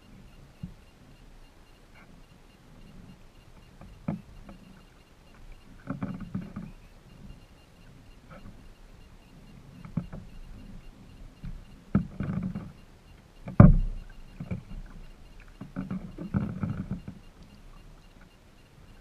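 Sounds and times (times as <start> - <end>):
paddle strokes in water: 1.8 - 19.0
paddle knocking against kayak: 9.8 - 10.8, 11.4 - 12.8, 13.4 - 18.3.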